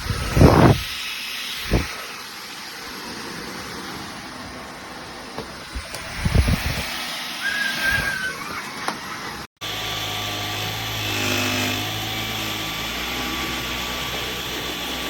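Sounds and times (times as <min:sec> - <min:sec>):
vacuum cleaner motor running: 0:09.6 - 0:15.0.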